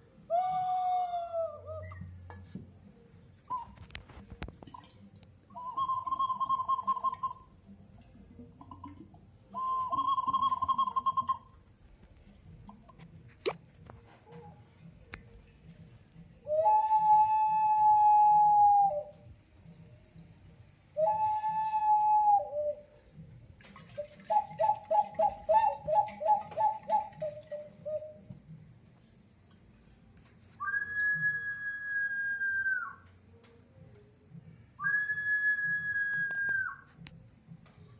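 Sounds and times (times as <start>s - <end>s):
pot making warbling whistle calls: 0.3s - 2.2s, 3.5s - 4.0s, 5.5s - 7.7s, 8.6s - 11.8s, 21.0s - 23.0s, 24.0s - 28.3s, 30.6s - 33.1s, 34.8s - 36.9s
crackly background: 1.7s - 16.8s
clay whistle bird-like call: 5.5s - 7.5s, 9.5s - 11.6s, 30.6s - 33.0s.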